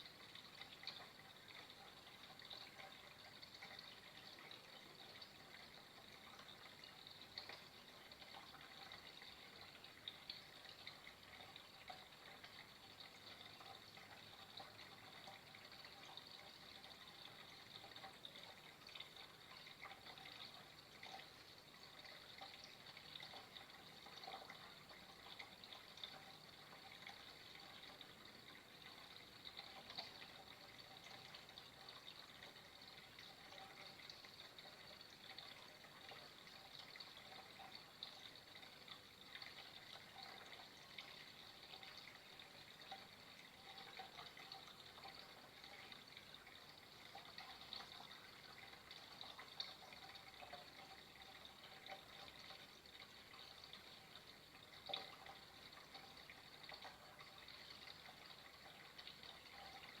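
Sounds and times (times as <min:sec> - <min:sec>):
water trickling: 0:00.0 - 1:00.0.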